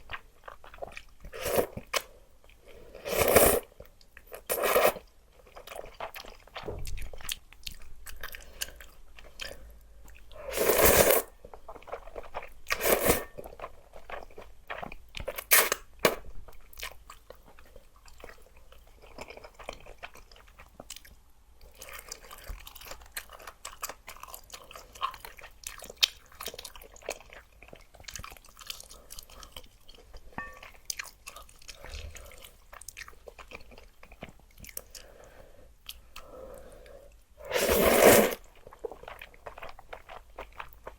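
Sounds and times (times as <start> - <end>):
close chewing and crunching: 0.0 - 2.9, 3.6 - 37.3, 38.4 - 40.9.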